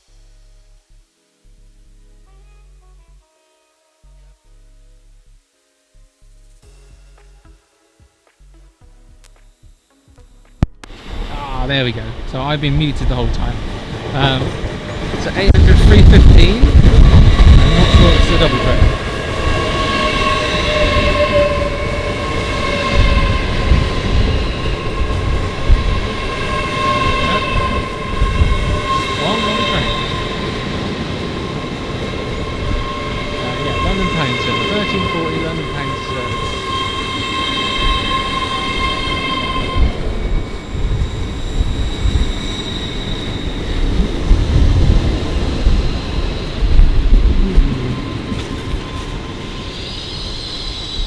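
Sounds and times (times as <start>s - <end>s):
train high whine: 0.0s - 51.0s
high steady tones: 6.5s - 51.0s
wind buffeting microphone: 10.6s - 51.0s.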